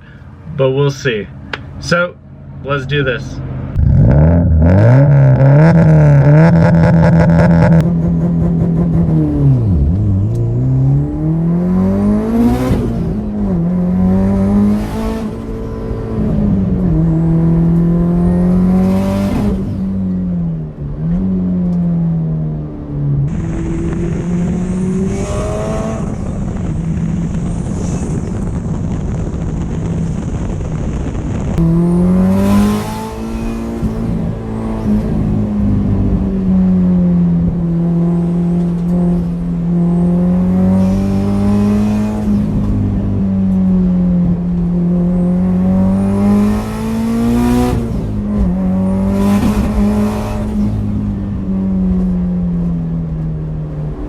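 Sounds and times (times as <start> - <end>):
car engine revving hard: 3.8 - 19.8, 23.3 - 27.2, 31.6 - 35.9, 37.8 - 42.7, 45.0 - 50.9.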